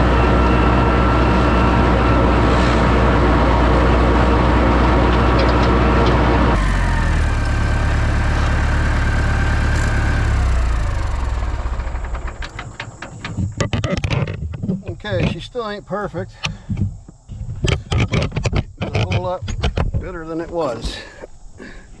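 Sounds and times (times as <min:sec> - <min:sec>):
tractor engine with rotary mower: 0:00.0 - 0:15.7, 0:17.3 - 0:20.8.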